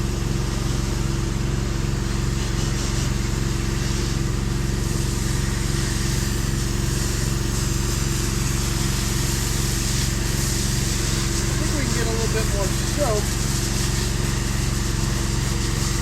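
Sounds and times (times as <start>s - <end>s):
pressure washer engine running: 0.0s - 16.0s
water spray hissing: 4.8s - 16.0s.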